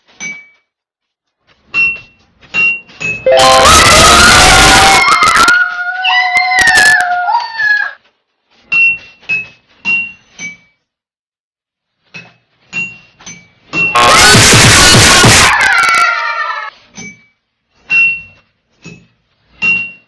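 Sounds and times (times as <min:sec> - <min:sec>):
short separate sounds: 0:03.3 - 0:04.2
dog howling: 0:03.3 - 0:08.0.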